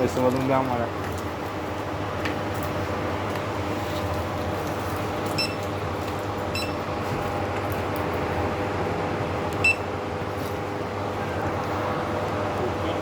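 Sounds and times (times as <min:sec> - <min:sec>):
short electronic beeps: 0:06.6 - 0:06.8.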